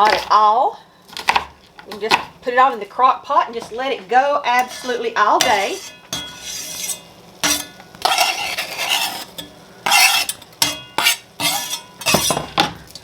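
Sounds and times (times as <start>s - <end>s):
utensil scraping in a pan: 3.6s - 12.6s.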